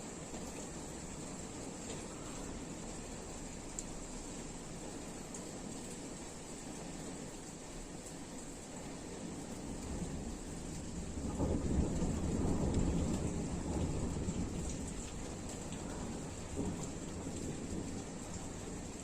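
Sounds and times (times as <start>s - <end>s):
steady rain shower: 0.0s - 19.0s
thunder rumbling: 9.7s - 19.0s.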